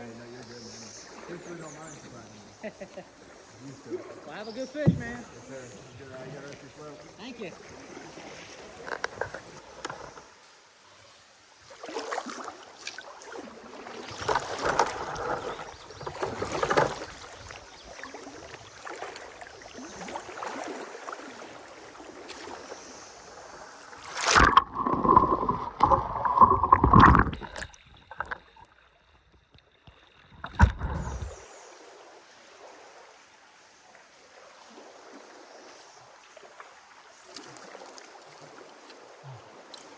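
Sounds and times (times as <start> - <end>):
water sloshing and splashing: 0.7 - 39.9
knocking on boat: 4.8 - 5.4.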